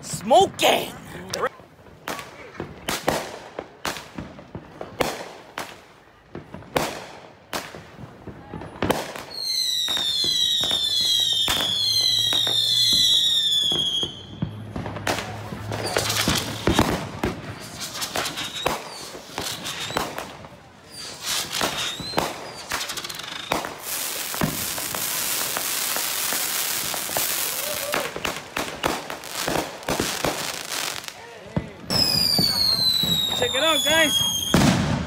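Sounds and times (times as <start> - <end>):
firework bangs: 1.9 - 35.0
firework whistles: 9.1 - 14.8, 15.6 - 31.1, 31.9 - 35.0
crackling pops: 15.0 - 20.4, 21.0 - 30.5.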